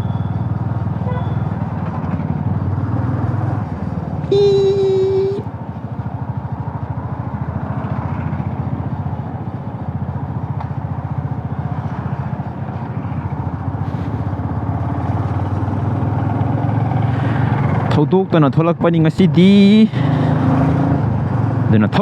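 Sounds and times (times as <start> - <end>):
horn note: 4.3 - 5.4.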